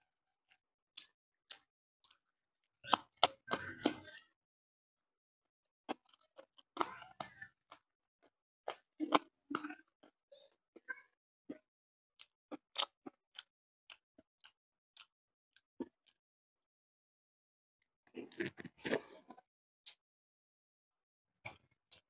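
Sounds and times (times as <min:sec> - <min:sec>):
man chewing with wet smacks: 0:00.5 - 0:02.2, 0:02.8 - 0:04.2, 0:05.9 - 0:10.9, 0:11.5 - 0:16.2, 0:18.1 - 0:19.2.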